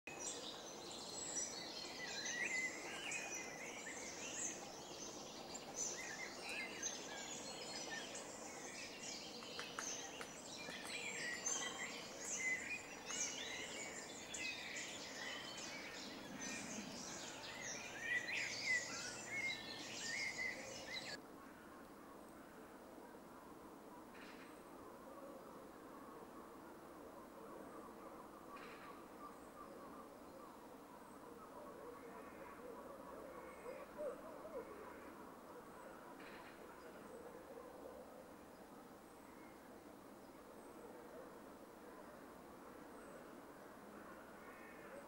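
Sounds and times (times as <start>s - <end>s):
songbirds chirping in chorus: 0.1s - 21.2s.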